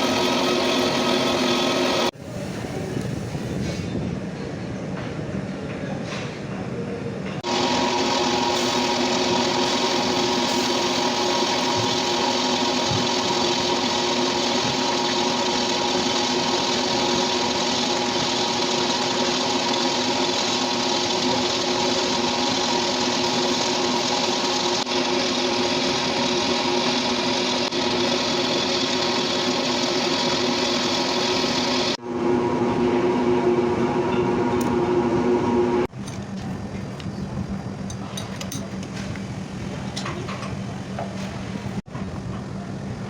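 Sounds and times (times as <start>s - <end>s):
metal lathe running: 0.0s - 2.1s, 7.4s - 35.9s.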